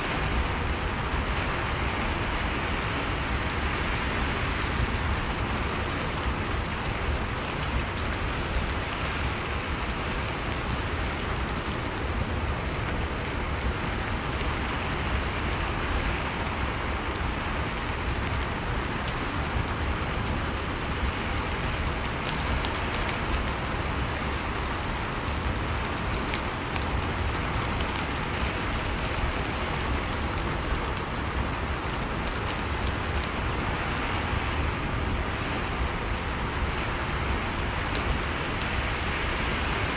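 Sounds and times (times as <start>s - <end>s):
rain falling: 0.0s - 39.9s
raindrops pattering on a surface: 0.0s - 39.9s.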